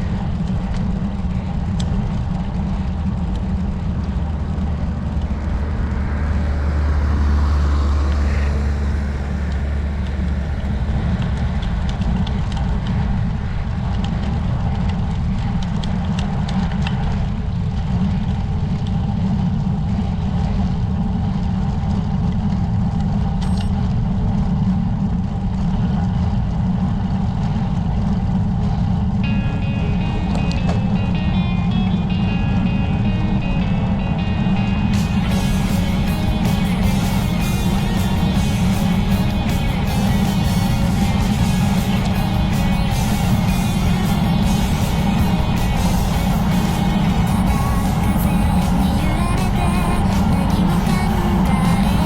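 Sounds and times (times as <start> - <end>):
wind rumbling on microphone: 0.0 - 29.3
tyre and road noise: 0.0 - 52.0.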